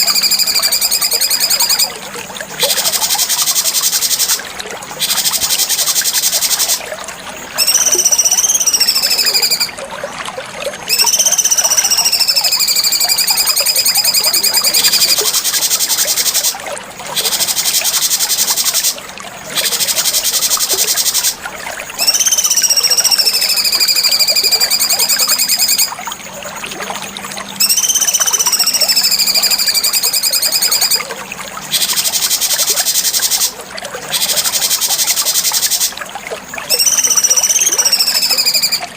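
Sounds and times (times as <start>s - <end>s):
bird whistling song: 0.0s - 2.0s, 7.6s - 9.8s, 10.8s - 16.6s, 22.0s - 25.9s, 27.6s - 31.1s, 36.7s - 38.9s.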